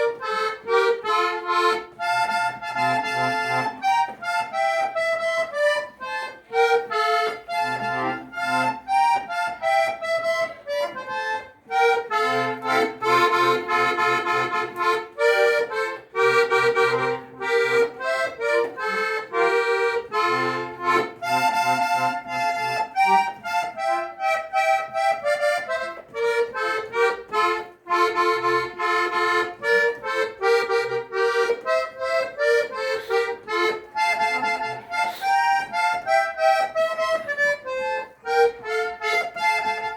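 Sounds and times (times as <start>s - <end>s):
accordion melody: 0.0s - 39.9s.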